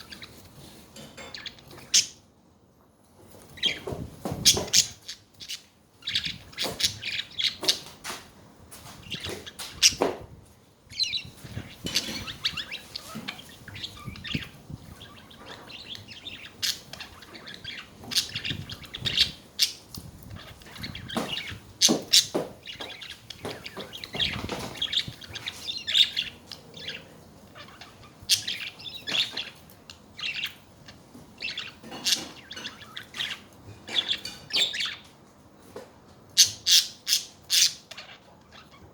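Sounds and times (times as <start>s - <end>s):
budgerigars chirping and warbling: 0.0s - 2.2s, 3.5s - 8.1s, 8.9s - 10.2s, 10.9s - 35.1s, 36.4s - 38.9s.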